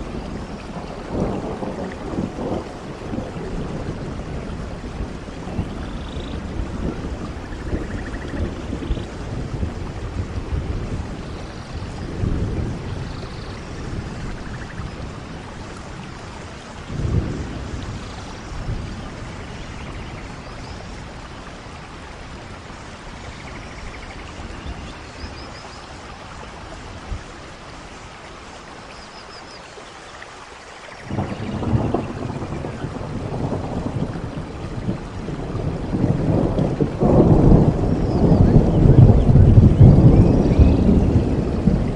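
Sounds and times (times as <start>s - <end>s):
road and wind rush: 0.0s - 20.0s.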